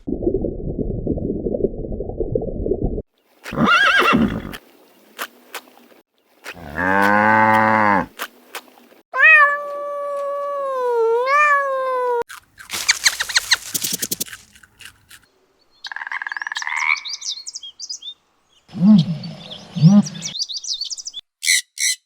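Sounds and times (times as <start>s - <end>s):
animal clicks: 12.7s - 15.2s.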